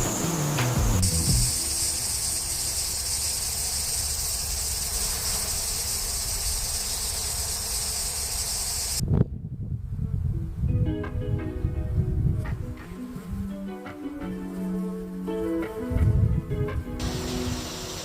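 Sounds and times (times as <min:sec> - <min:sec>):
high-pitched insect chorus: 0:00.0 - 0:09.0, 0:17.0 - 0:18.0.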